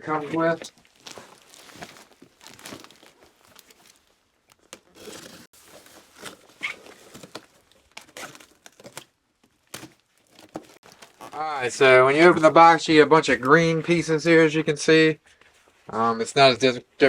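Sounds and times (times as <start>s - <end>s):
cardboard rustling and tearing: 0.1s - 12.6s.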